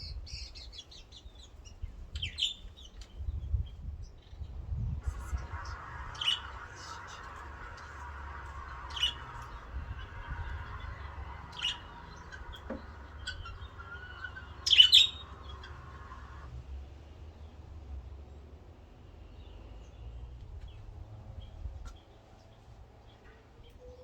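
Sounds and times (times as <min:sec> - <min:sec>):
bird chirping: 0:00.0 - 0:16.5
low rumble: 0:03.2 - 0:16.4.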